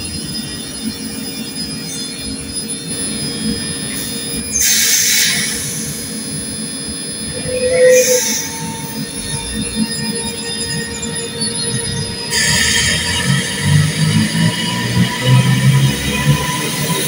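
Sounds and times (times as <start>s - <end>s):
thin high whine: 0.0s - 17.0s
short squeal: 7.1s - 13.4s.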